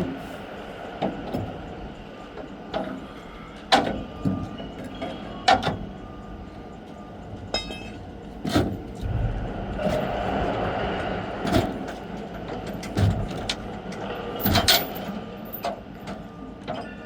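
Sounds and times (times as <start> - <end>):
vehicle engine rumbling: 8.2 - 15.9.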